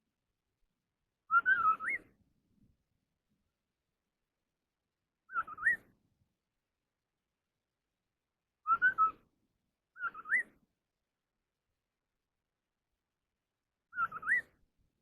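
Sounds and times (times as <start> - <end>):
bird whistled fluty calls: 1.3 - 2.1, 5.3 - 5.9, 8.6 - 9.2, 10.0 - 10.6, 13.9 - 14.6.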